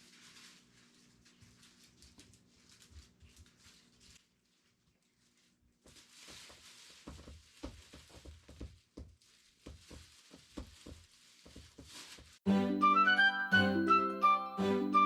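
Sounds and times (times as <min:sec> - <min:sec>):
soft taps and thuds: 0:07.0 - 0:12.4.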